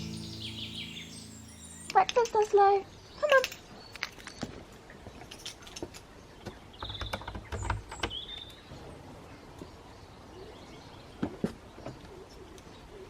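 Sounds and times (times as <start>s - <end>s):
short high chirps: 0.0s - 2.0s.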